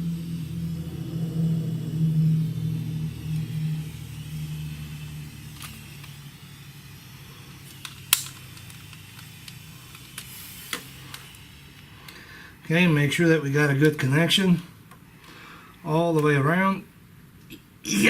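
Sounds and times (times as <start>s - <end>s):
low engine-like hum: 0.0s - 12.0s.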